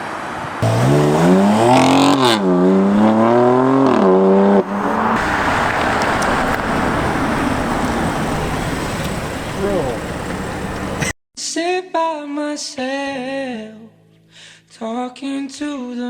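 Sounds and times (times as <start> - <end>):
car engine accelerating hard: 0.6 - 11.1
steady rushing noise: 4.6 - 11.1.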